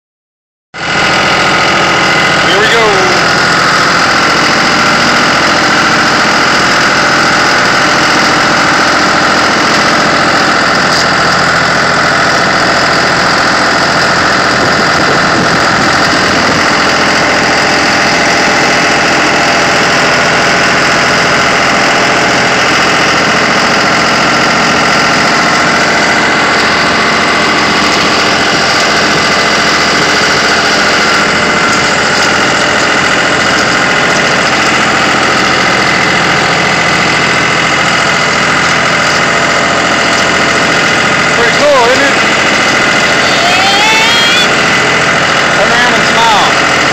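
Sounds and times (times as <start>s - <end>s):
tractor engine running: 0.8s - 46.9s.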